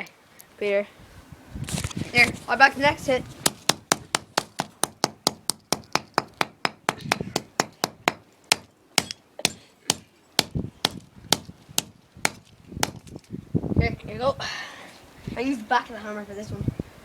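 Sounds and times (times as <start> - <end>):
hammer striking a mobile phone: 3.5 - 13.1.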